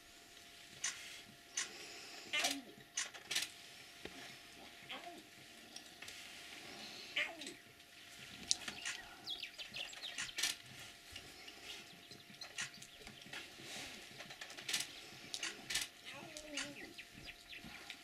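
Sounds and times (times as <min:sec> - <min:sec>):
birds chirping: 0:06.7 - 0:14.2, 0:14.9 - 0:18.0
sharp clicks: 0:08.5 - 0:09.1, 0:09.8 - 0:10.6, 0:12.4 - 0:13.2, 0:14.6 - 0:16.9.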